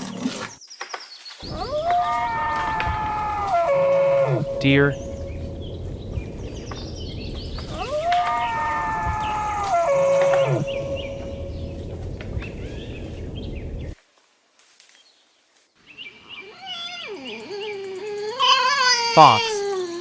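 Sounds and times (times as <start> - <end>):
deer calling: 1.6 - 5.8, 7.7 - 12.0, 16.4 - 19.7.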